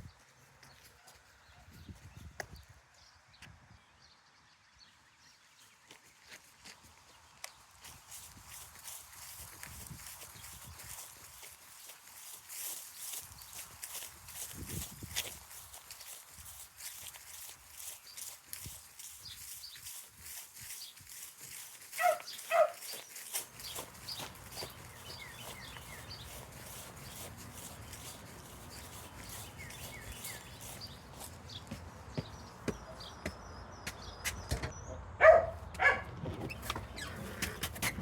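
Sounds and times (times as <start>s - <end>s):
small birds chirping: 0.0s - 35.9s
footsteps: 5.9s - 34.7s
dog barking: 22.0s - 22.9s, 35.2s - 36.1s.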